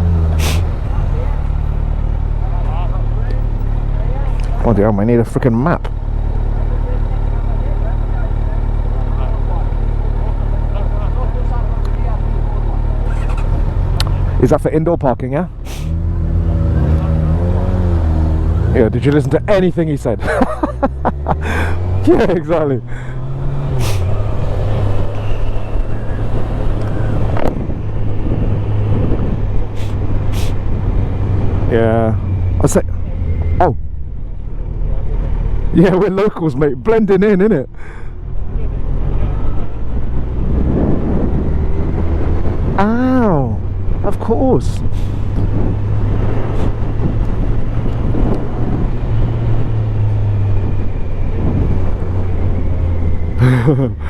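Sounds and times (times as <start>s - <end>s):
road and wind rumble: 0.0s - 54.0s
wind noise on microphone: 24.0s - 31.7s, 39.6s - 42.8s, 44.9s - 53.3s.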